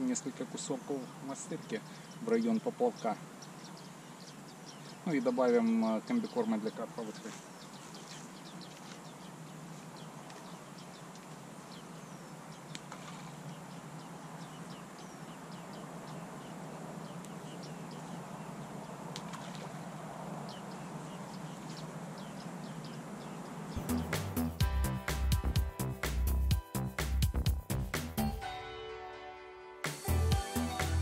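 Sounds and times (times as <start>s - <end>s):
steady background hiss: 0.0s - 23.8s
birds chirping: 0.0s - 28.5s
faint clicks: 12.7s - 13.3s.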